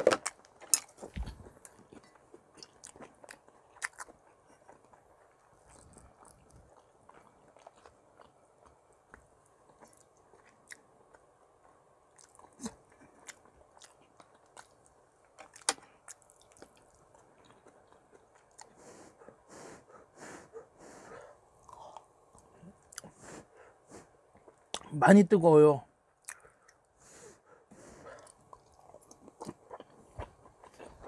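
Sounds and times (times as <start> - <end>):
person chewing: 0.0 - 24.9, 26.2 - 26.9, 27.7 - 31.0.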